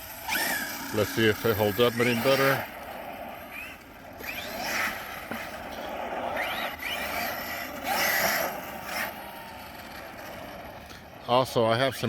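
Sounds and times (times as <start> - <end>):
toy truck electric motor whining: 0.0 - 11.1.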